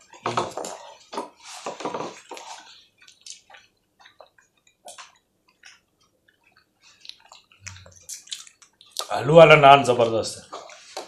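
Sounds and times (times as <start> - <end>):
chewing bread: 2.1 - 9.1
wet mouth clicks and smacks: 2.3 - 9.1.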